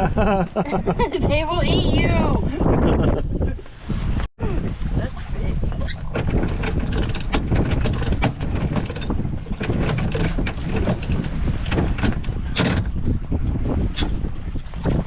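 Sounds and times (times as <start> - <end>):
sailboat low rumble: 0.0 - 15.0
clattering and knocking aboard: 5.6 - 15.0.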